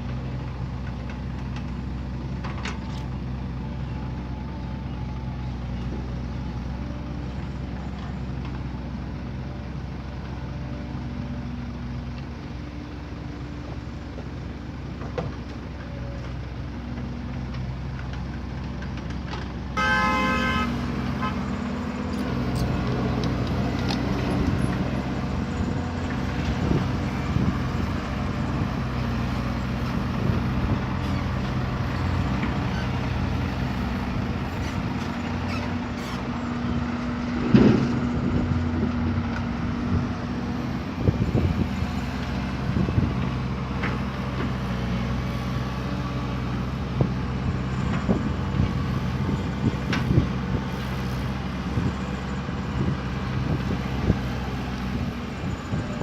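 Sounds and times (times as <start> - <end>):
diesel machinery running: 0.0 - 56.0
horn toot: 19.8 - 21.4.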